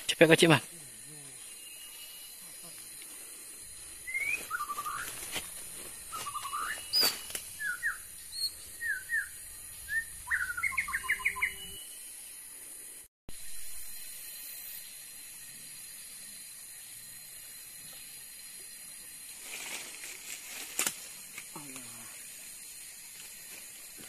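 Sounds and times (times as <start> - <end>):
steady high hiss: 0.0 - 24.0
songbird chirping: 0.7 - 12.4.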